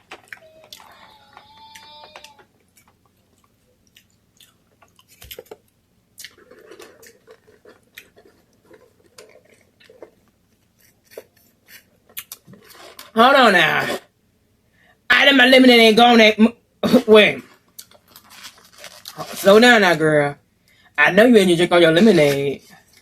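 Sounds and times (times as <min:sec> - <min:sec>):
person chewing food: 0:00.0 - 0:13.1, 0:17.4 - 0:19.2.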